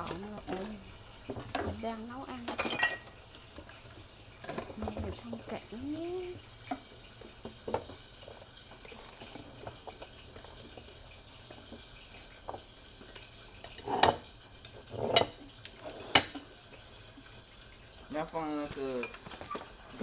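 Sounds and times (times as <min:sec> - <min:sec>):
dishes and utensils clattering: 0:00.0 - 0:03.8, 0:04.4 - 0:05.4, 0:12.4 - 0:16.6, 0:18.6 - 0:20.0
faint scraping and stirring: 0:06.3 - 0:18.0.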